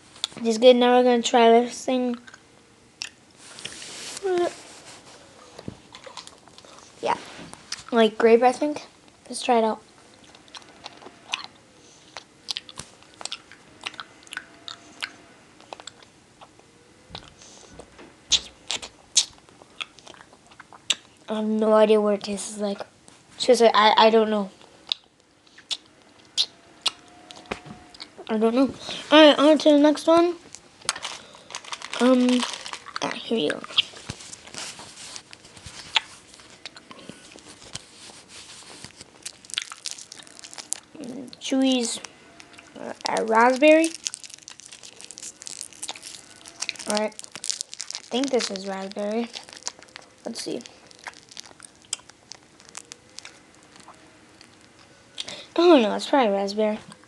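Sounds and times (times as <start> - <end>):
chewing candy with wet mouth smacks: 10.2 - 16.6, 39.2 - 40.9, 42.5 - 55.3.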